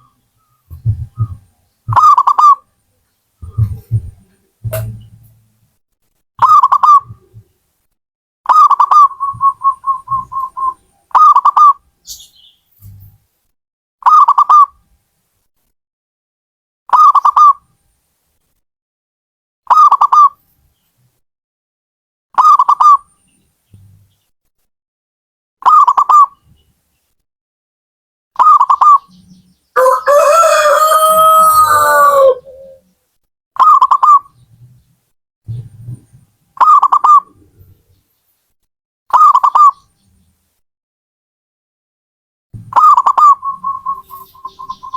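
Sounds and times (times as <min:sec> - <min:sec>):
dove cooing: 0:08.9 - 0:11.6, 0:29.8 - 0:32.8, 0:42.7 - 0:44.9
rooster crowing: 0:29.8 - 0:32.8.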